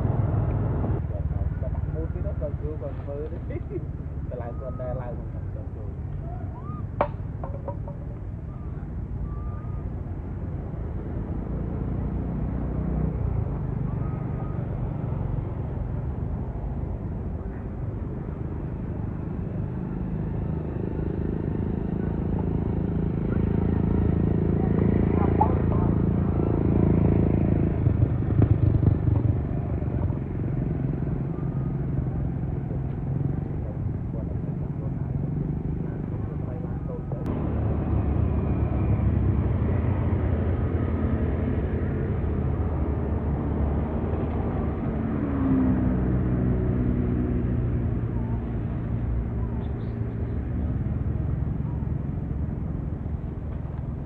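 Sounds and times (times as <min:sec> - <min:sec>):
engine running low rumble: 0:00.0 - 0:54.0
knocks: 0:07.0 - 0:08.1.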